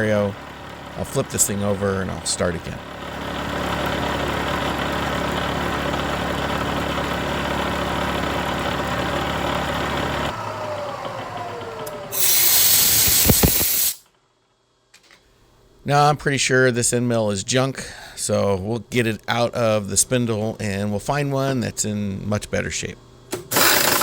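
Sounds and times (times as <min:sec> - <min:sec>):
milling machine running: 0:02.8 - 0:14.0, 0:23.4 - 0:24.0
spindle winding down whine: 0:08.8 - 0:14.0
compressed air blast: 0:12.1 - 0:14.0.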